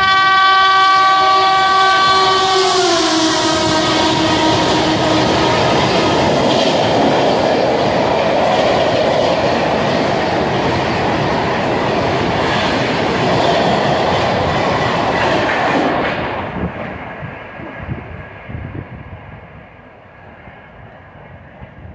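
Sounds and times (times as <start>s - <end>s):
train rumbling past: 0.0s - 21.9s
wheels clacking over rail joints: 4.0s - 17.5s.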